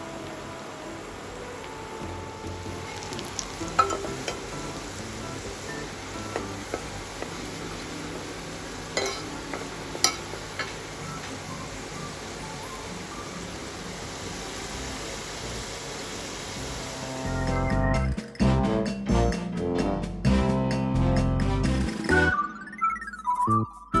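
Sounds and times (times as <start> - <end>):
chicken sizzling in a pan: 0.0 - 17.4
utensil knocking against pan: 2.4 - 4.6.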